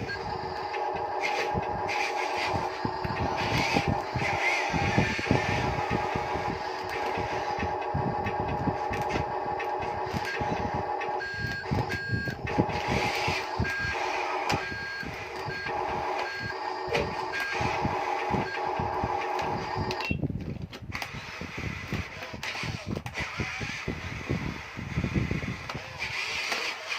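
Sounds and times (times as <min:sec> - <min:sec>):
electronic reversing beeper: 0:00.0 - 0:07.6, 0:10.2 - 0:20.0
small electric motors whirring: 0:00.0 - 0:20.1, 0:20.8 - 0:26.9.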